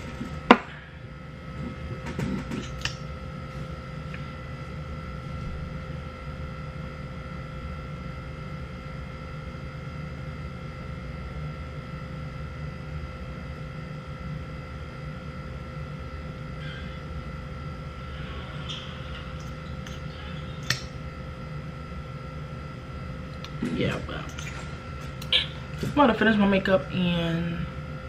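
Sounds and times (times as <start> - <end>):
mechanical hum with high whine: 0.0 - 28.0.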